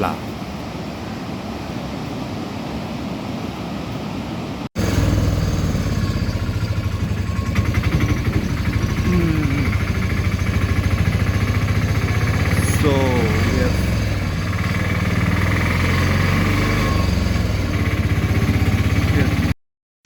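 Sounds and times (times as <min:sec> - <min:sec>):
vehicle engine running: 0:04.8 - 0:19.6.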